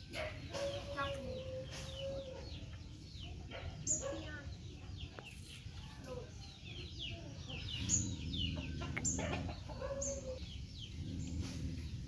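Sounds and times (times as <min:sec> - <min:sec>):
birds chirping: 0:00.0 - 0:12.0
low rumble: 0:10.4 - 0:12.0.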